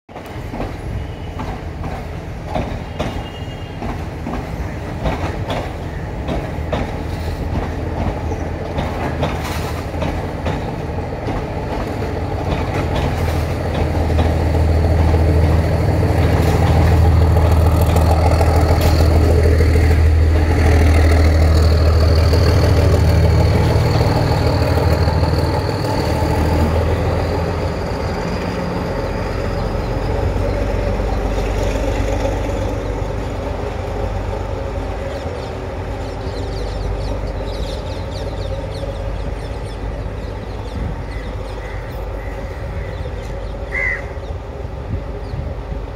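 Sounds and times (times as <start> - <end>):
wheels clicking over rail joints: 0.2 - 27.5.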